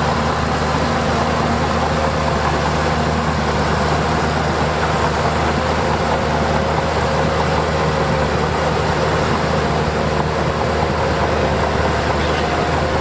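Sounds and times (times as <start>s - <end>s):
heavy machinery diesel engine: 0.0s - 13.0s.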